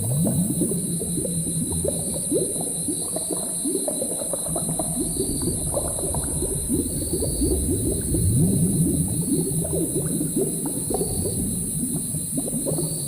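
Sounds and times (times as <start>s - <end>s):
low rumble: 4.6s - 10.1s.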